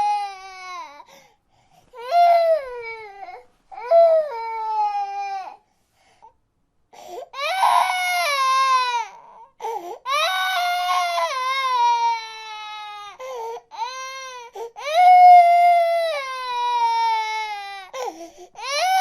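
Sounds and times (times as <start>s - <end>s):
baby crying: 0.0s - 1.1s, 2.0s - 5.6s, 7.2s - 19.0s.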